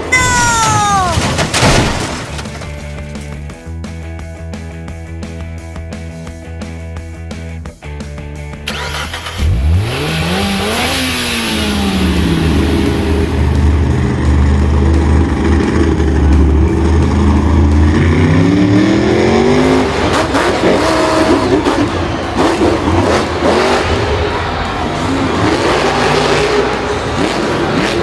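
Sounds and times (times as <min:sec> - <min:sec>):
engine revving: 0:08.6 - 0:28.0.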